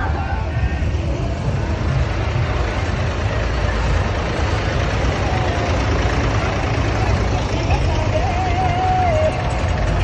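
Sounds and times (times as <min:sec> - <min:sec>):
tractor diesel engines running: 0:00.0 - 0:10.0.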